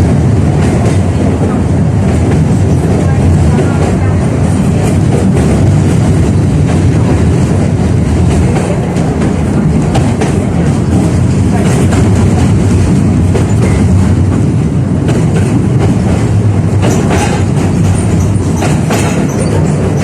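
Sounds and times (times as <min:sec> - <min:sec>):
tram wheels rumbling: 0:00.0 - 0:20.0
wheels clacking over rail joints: 0:08.2 - 0:20.0.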